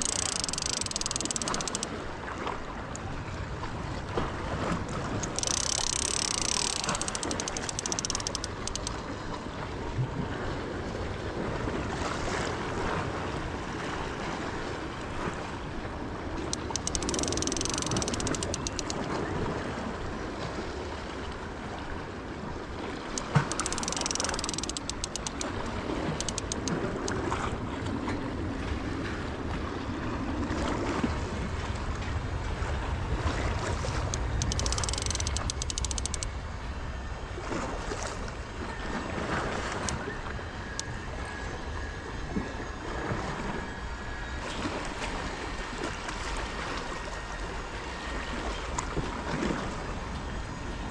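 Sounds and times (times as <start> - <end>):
rapid fine clicking: 0.0 - 2.0, 5.2 - 9.1, 16.5 - 19.1, 23.2 - 27.2, 34.0 - 36.3
waves against rocky shore: 0.0 - 50.9.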